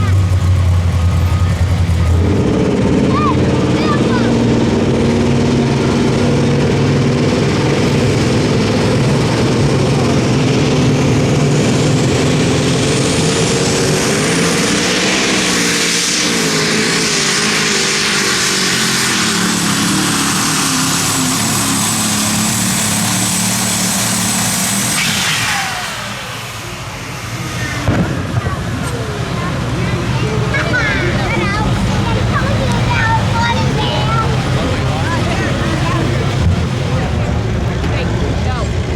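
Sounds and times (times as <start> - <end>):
diesel engine running flat out: 0.0 - 38.9
high turbo whistle: 15.3 - 28.3.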